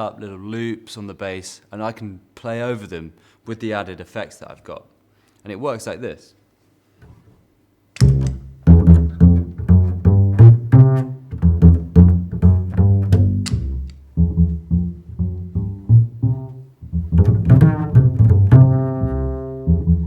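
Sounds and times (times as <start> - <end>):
double bass plucked: 8.0 - 20.0.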